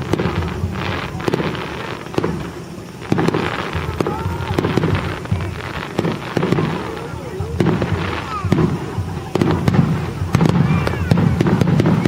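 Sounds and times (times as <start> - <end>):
continuous rumble: 0.0 - 12.0
firework shells bursting: 0.0 - 12.0.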